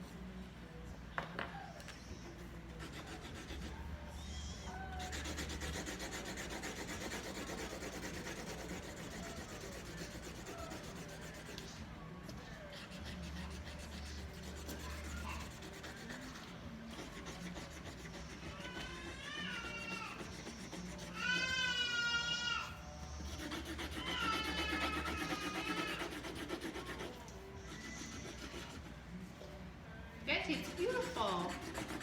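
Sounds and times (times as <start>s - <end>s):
felt-tip markers scratching on paper: 2.2s - 3.8s, 4.5s - 11.8s, 12.7s - 21.8s, 23.2s - 29.0s, 30.4s - 32.0s.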